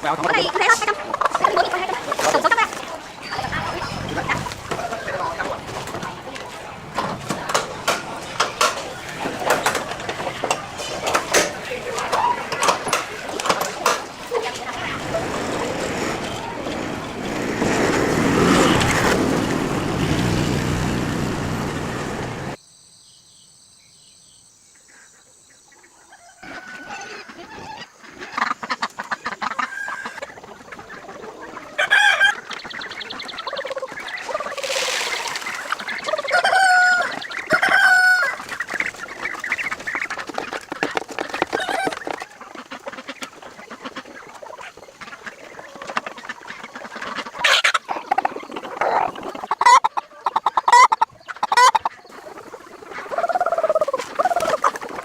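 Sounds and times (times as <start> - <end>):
chickens clucking and calling: 0.0 - 19.3, 25.6 - 55.0
loud rushing noise: 14.7 - 22.6.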